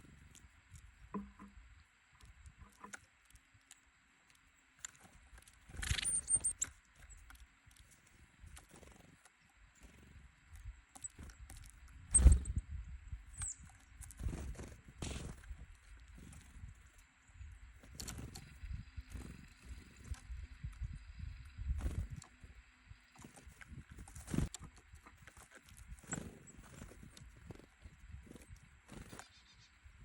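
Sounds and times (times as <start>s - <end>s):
birds pecking on wooden feeder: 0.0s - 12.6s, 13.4s - 29.6s
bird wingbeats and landing knocks: 12.1s - 12.6s, 14.0s - 15.6s, 23.2s - 24.7s.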